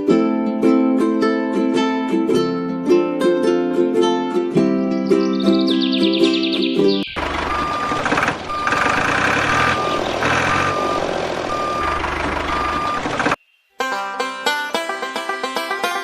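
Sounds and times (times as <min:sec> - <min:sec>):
engine rumble: 0:07.0 - 0:13.4
reversing alarm beeping: 0:07.2 - 0:13.4.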